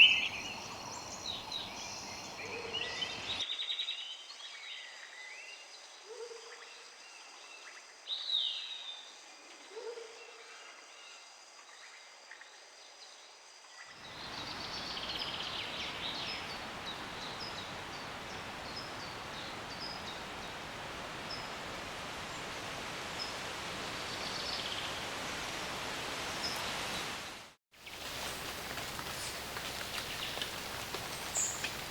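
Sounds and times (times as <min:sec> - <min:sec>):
high whistled bird calls: 0:00.0 - 0:03.4
steady hiss: 0:14.0 - 0:31.9.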